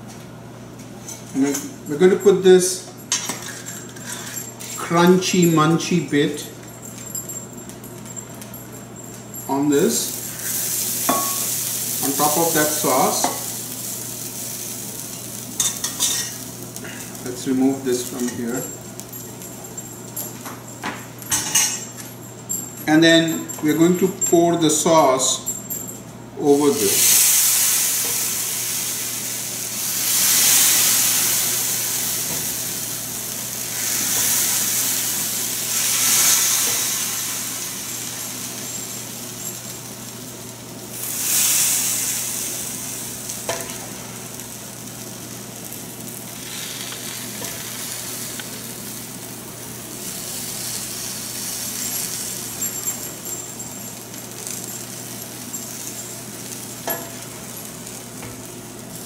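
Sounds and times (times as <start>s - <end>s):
food sizzling in a pan: 8.3s - 20.1s, 26.7s - 59.0s.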